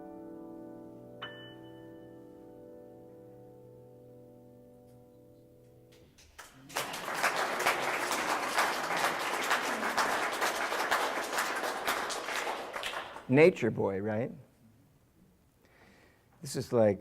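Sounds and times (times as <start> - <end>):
audience applause: 6.3 - 13.4.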